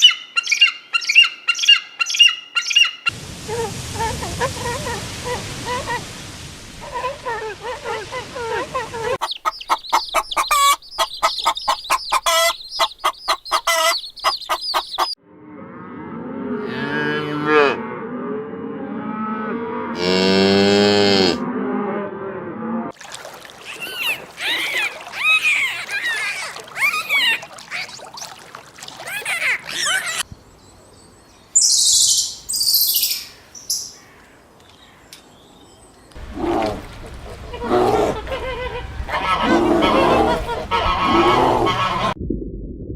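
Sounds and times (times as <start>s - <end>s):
chickens clucking: 7.9s - 15.2s, 36.3s - 42.2s
shrill animal calls: 9.2s - 15.2s, 23.7s - 28.4s.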